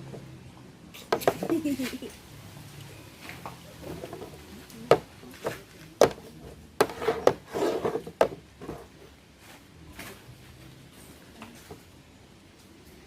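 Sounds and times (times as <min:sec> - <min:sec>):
cups knocking on table: 0:01.1 - 0:01.6, 0:04.9 - 0:05.1, 0:06.0 - 0:06.2
cups scraping on table: 0:03.8 - 0:09.0.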